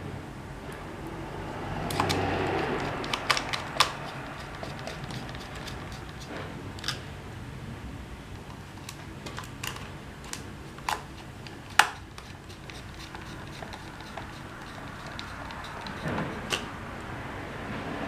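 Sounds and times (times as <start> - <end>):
small hard parts clicking: 1.9 - 7.1, 8.4 - 16.7.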